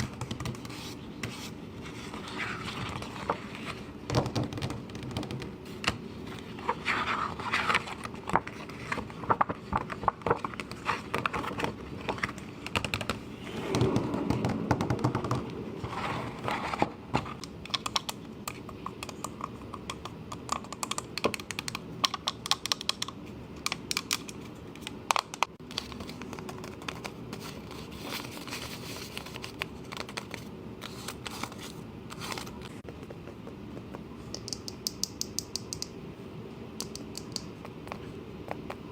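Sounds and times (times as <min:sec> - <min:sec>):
tapping and clicking: 0:32.8 - 0:35.9.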